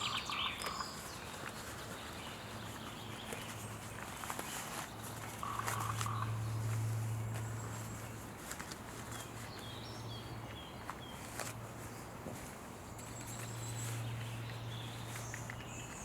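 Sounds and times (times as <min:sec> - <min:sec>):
bird chirping: 0:00.0 - 0:03.7.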